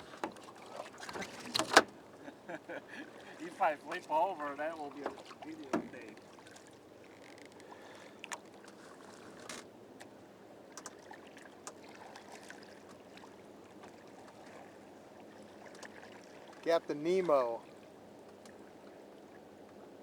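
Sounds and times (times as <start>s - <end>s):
faint water lapping: 0.0s - 20.0s
light taps and drips: 3.0s - 8.8s, 9.4s - 16.7s, 17.6s - 19.8s.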